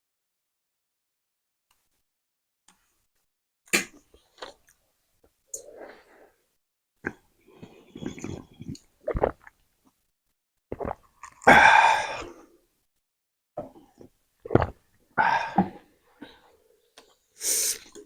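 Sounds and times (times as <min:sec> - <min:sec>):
chewing and slurping noodles: 0:07.5 - 0:09.5.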